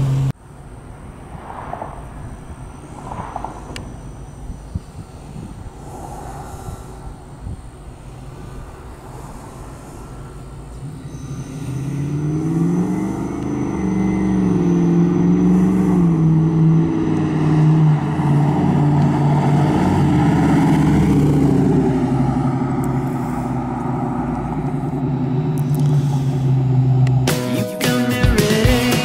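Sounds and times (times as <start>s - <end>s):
car engine accelerating past: 2.9s - 4.0s, 11.0s - 22.9s.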